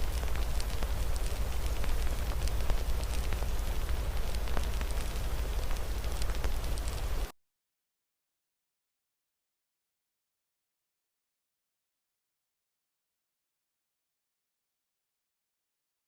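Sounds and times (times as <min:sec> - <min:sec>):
rain hissing: 0:00.0 - 0:07.3
wood fire crackling and popping: 0:00.0 - 0:07.3.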